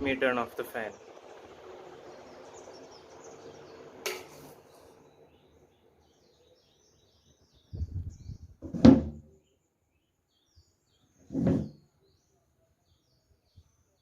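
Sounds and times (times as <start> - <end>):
ceiling fan rushing air: 0.0 - 6.2.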